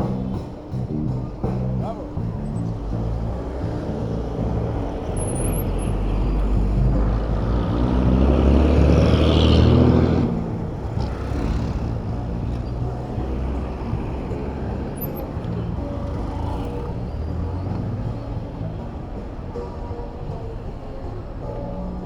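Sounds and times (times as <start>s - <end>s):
road traffic noise: 0.0s - 22.0s
vehicle engine passing close: 2.4s - 18.8s.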